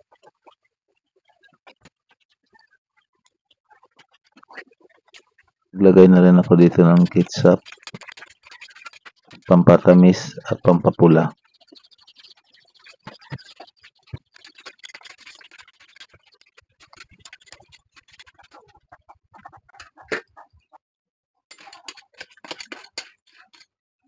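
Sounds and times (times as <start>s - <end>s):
crabs crackling in a wok: 7.6s - 9.5s, 11.3s - 18.6s.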